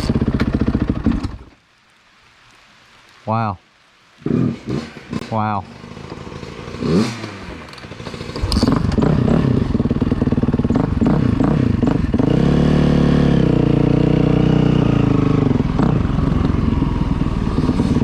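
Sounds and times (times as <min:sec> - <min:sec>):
dirt bike engine revving: 0:04.2 - 0:18.0.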